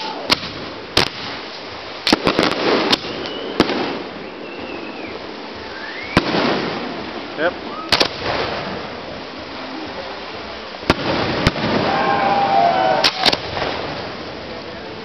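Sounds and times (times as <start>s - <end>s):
fireworks bangs: 0.0s - 14.6s
steady hiss: 0.0s - 15.0s
firework whistle rising: 2.8s - 6.6s, 11.4s - 13.6s.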